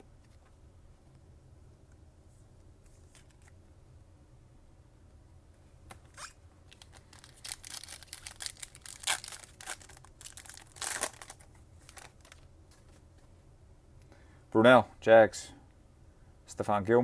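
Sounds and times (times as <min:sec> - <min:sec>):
foil wrapper crinkling: 0:06.7 - 0:13.0
foil pack tearing: 0:06.8 - 0:12.4.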